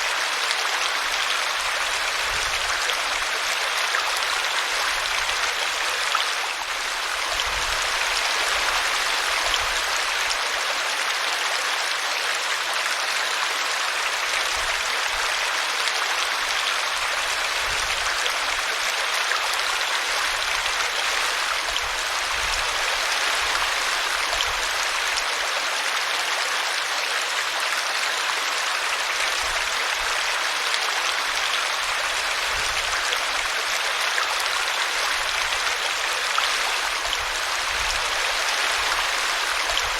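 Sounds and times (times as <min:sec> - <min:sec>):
brook babbling over root: 0:13.4 - 0:39.9.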